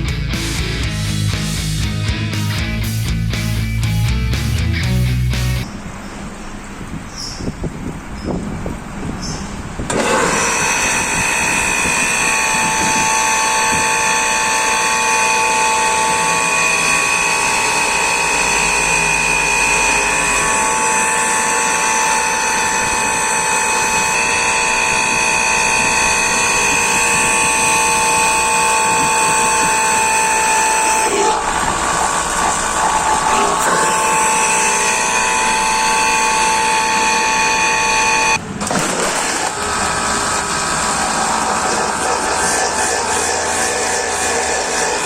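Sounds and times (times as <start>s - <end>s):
vacuum pump motor whining: 9.8s - 45.0s.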